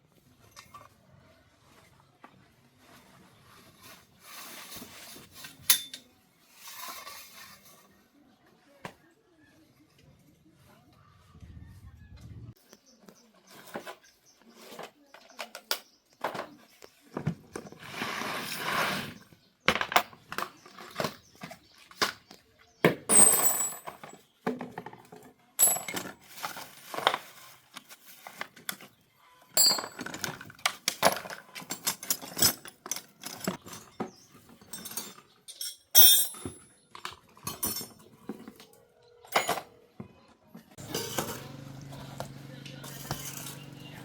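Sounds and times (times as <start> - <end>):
metal parts and tools clinking: 4.4 - 7.9, 23.1 - 28.9, 29.5 - 39.8, 40.8 - 41.8, 42.8 - 44.0.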